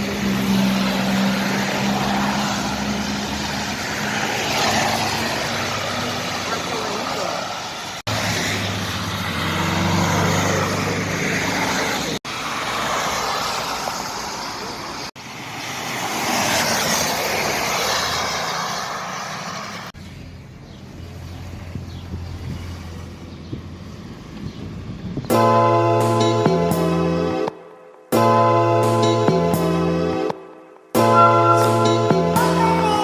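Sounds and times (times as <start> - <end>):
car tyres hissing on wet road: 0.1 - 20.0
low engine hum: 20.0 - 25.7.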